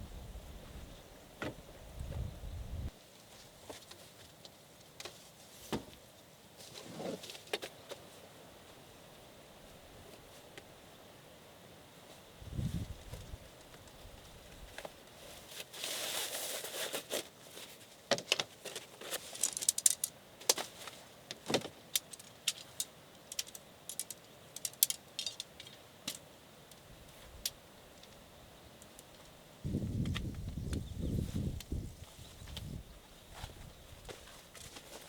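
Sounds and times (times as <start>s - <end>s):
rustle: 0.0s - 35.0s
small metal items clinking: 22.0s - 26.2s.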